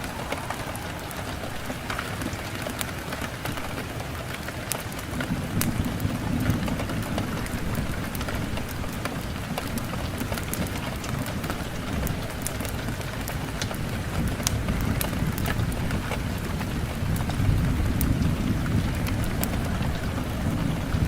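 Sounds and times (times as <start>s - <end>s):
raindrops ticking: 0.0s - 21.0s
steady rain: 0.0s - 21.0s.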